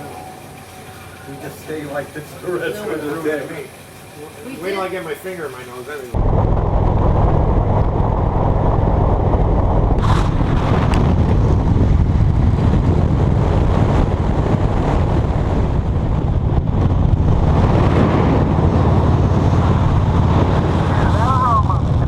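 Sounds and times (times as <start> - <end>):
motorcycle engine drone: 6.2 - 22.0
wind buffeting microphone: 6.2 - 22.0.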